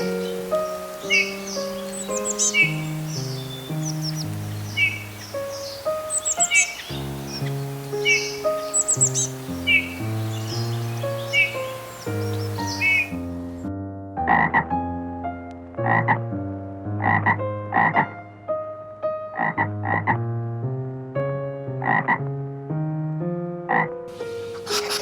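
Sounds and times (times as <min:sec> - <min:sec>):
soft background music: 0:00.0 - 0:25.0
frog croaking: 0:14.3 - 0:14.7, 0:15.8 - 0:16.3, 0:16.9 - 0:18.2, 0:19.4 - 0:20.2, 0:21.8 - 0:22.2, 0:23.7 - 0:24.0.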